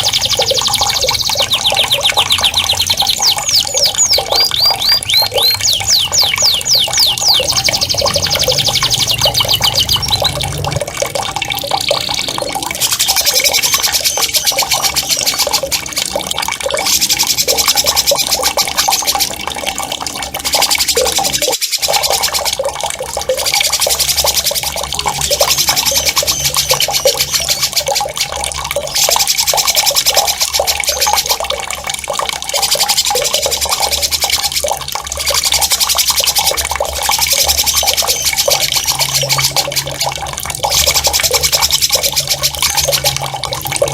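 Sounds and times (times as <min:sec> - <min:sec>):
songbird trilling: 0:00.0 - 0:10.4, 0:25.2 - 0:27.8, 0:37.4 - 0:39.7
running water: 0:00.0 - 0:43.9.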